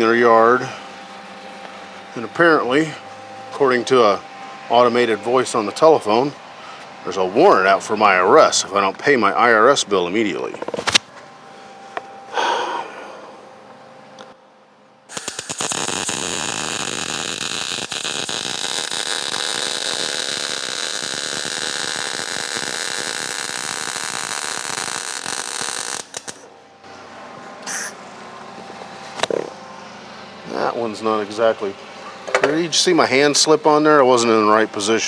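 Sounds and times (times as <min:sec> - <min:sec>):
welding arc crackling: 0:15.1 - 0:26.5.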